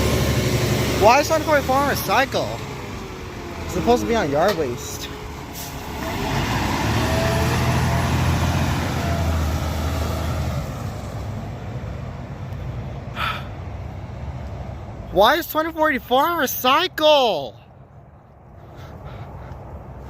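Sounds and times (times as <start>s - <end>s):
garbage truck diesel engine hum: 0.0s - 14.2s.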